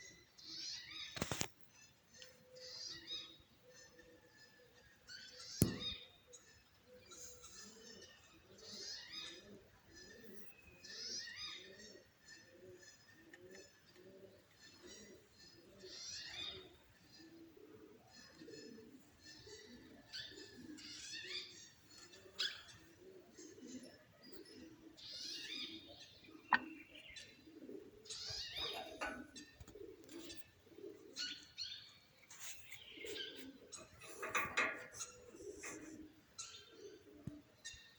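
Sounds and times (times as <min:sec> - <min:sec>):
small birds chirping: 0:00.0 - 0:37.9
doves cooing: 0:02.2 - 0:37.9
low cooing: 0:22.1 - 0:25.0, 0:26.3 - 0:31.3.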